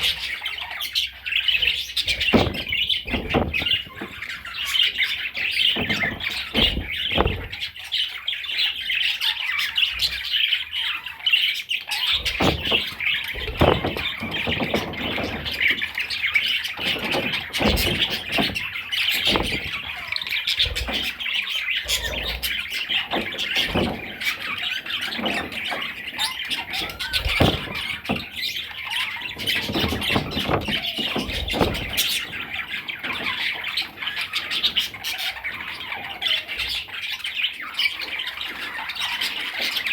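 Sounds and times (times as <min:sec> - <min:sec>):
budgerigar chattering and warbling: 0:00.0 - 0:39.9
short knocks: 0:02.0 - 0:07.7, 0:12.2 - 0:21.2, 0:26.6 - 0:28.6, 0:29.4 - 0:32.4.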